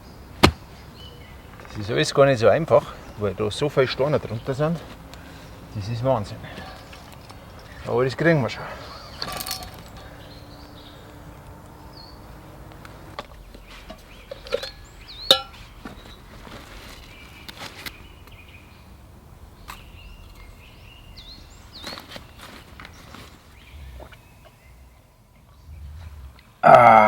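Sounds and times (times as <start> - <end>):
songbirds chirping: 0.0 - 27.0.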